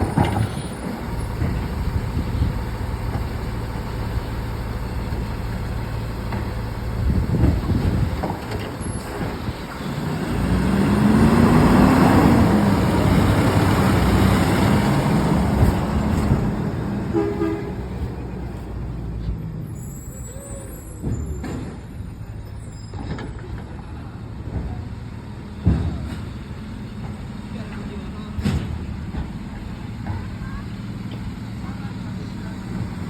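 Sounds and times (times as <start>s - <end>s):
garbage truck engine revving: 0.0s - 19.0s.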